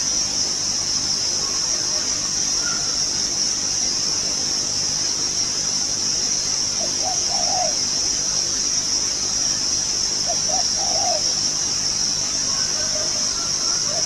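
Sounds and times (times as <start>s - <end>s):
insects droning: 0.0s - 14.0s
dove cooing: 6.8s - 8.0s, 10.2s - 11.4s, 12.5s - 14.0s.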